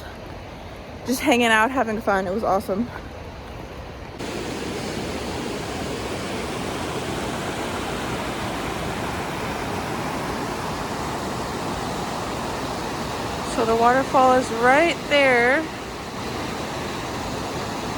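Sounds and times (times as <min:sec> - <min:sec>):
waterfall rushing: 0:04.2 - 0:17.9.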